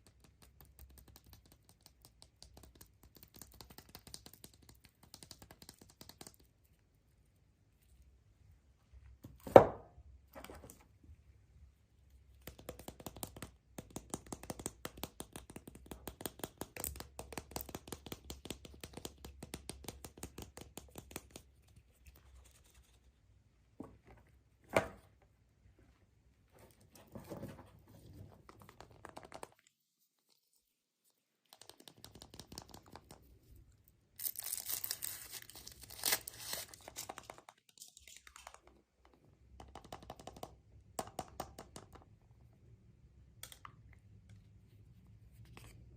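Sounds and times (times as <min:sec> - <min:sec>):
wrappers crinkling and tearing: 0:34.2 - 0:37.0.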